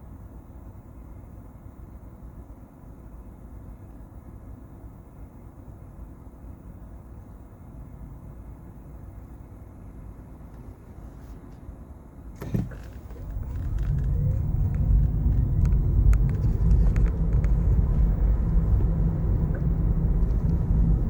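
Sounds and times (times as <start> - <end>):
car road rumble: 12.4 - 21.0
faint rising whine: 12.8 - 21.0
light ticks: 13.1 - 21.0.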